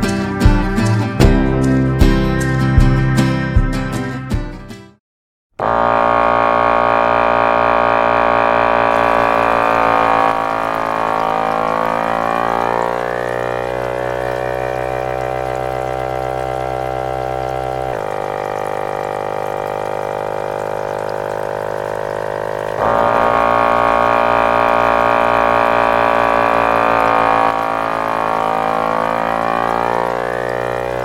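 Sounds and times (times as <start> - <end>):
strummed guitar music: 0.0 - 4.9
small engine running: 5.6 - 31.0.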